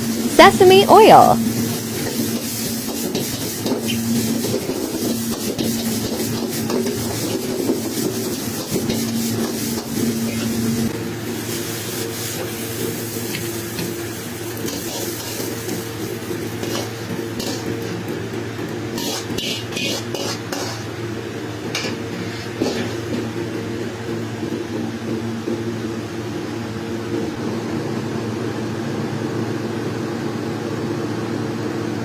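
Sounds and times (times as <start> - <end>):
food sizzling: 0.0 - 23.8
metal utensil scraping wok: 2.0 - 10.6, 14.5 - 18.0, 18.9 - 20.9, 21.7 - 23.2.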